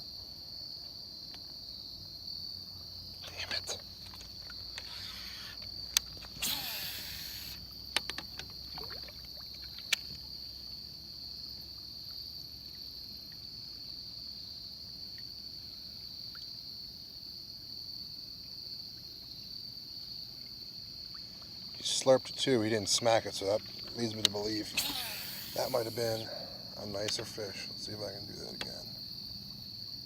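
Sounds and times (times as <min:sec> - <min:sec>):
insects droning: 0:00.0 - 0:30.0
sharp clicks: 0:03.2 - 0:08.4, 0:23.8 - 0:26.4.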